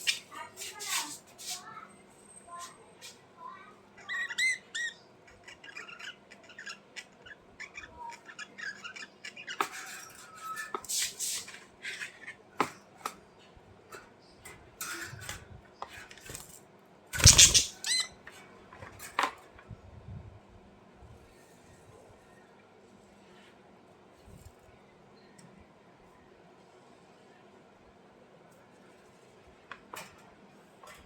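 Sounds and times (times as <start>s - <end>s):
bird squawk: 17.2s - 18.1s
budgerigars chirping: 17.2s - 18.1s.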